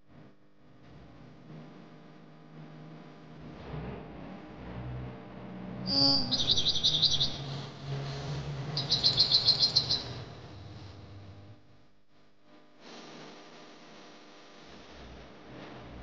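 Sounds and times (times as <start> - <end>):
bird singing with high trills: 5.9 - 7.6, 8.8 - 10.2.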